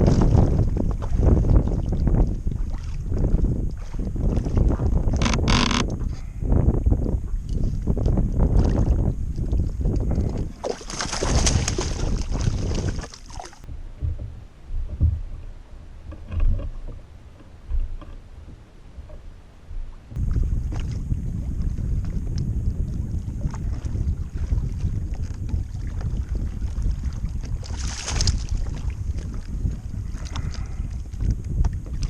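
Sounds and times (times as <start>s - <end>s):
water lapping at hull: 0.0s - 32.0s
wind buffeting microphone: 0.0s - 32.0s
soft knocks against hull: 9.9s - 15.5s.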